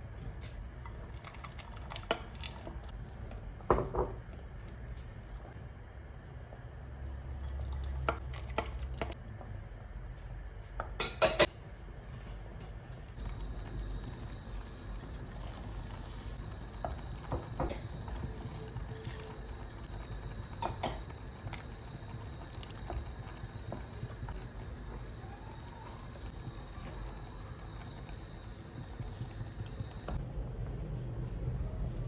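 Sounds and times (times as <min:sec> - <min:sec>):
dishes and utensils clinking: 0:11.0 - 0:11.5.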